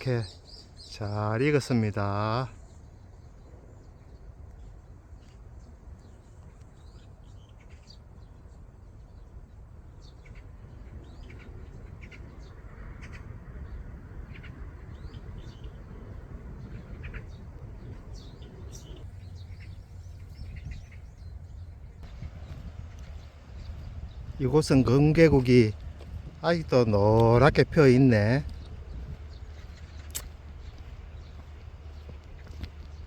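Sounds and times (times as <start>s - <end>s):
birds chirping: 0.0s - 33.0s
low outdoor rumble: 9.6s - 33.0s.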